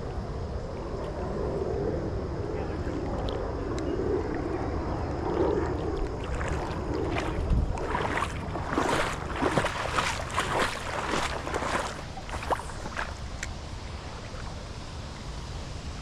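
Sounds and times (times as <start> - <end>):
creek water splashing around legs: 5.2 - 15.1.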